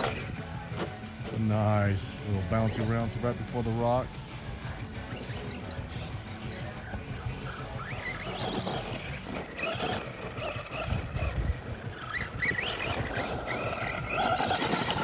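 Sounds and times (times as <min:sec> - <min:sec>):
electric motors revving whine: 0:00.0 - 0:15.0
wind rumble on microphone: 0:05.9 - 0:15.0.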